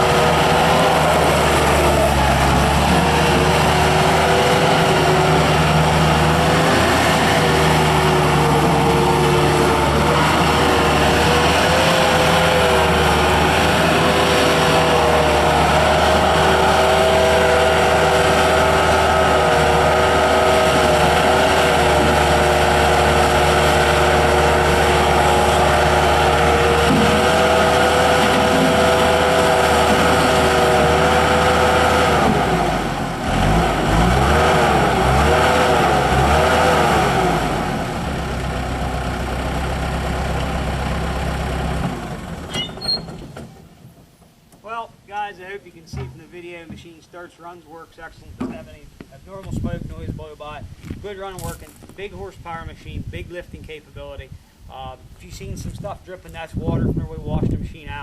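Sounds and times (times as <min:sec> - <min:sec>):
diesel engine revving: 0:00.0 - 0:43.4.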